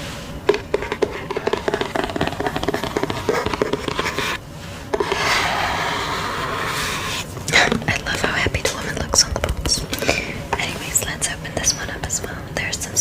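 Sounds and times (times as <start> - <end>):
fingernails tapping on a box: 0.5 - 4.3
rubbing across box surface: 0.5 - 7.8.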